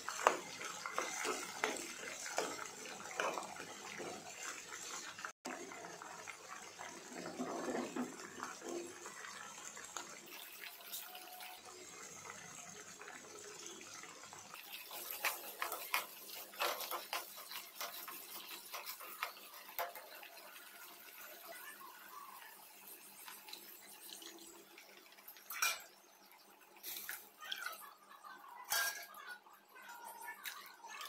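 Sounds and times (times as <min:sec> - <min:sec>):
food sizzling in ghee: 0:00.0 - 0:31.0.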